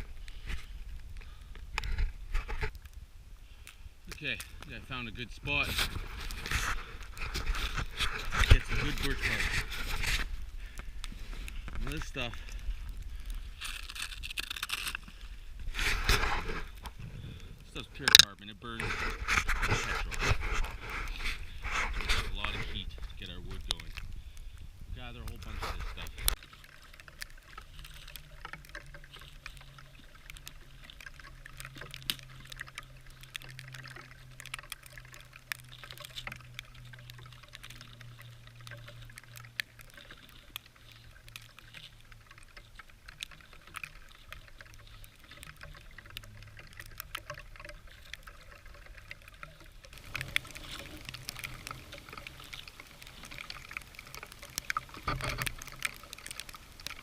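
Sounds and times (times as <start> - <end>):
bark being peeled and torn: 12.9 - 16.9.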